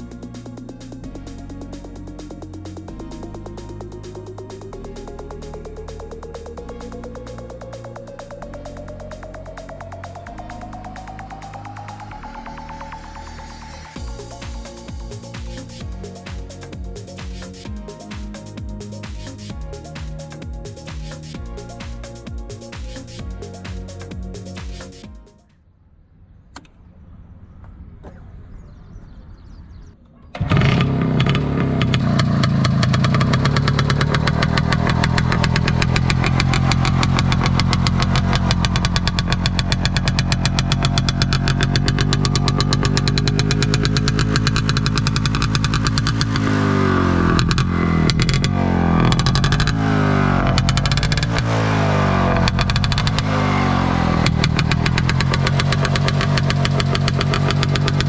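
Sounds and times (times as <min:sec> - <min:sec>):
two-stroke motorcycle engine revving: 0:30.4 - 0:58.0.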